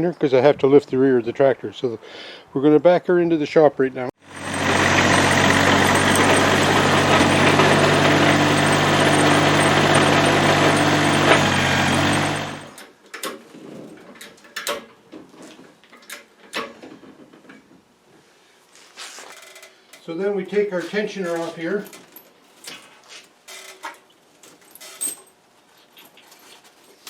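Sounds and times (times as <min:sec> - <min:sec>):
tractor diesel engine running: 0:04.2 - 0:12.8.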